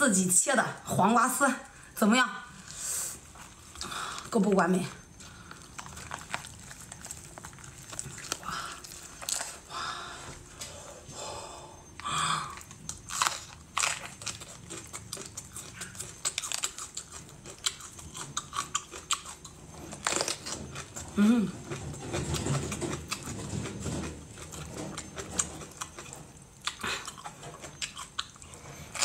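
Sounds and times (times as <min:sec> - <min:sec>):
wet squishing chewing: 0:05.1 - 0:09.7, 0:11.9 - 0:29.0.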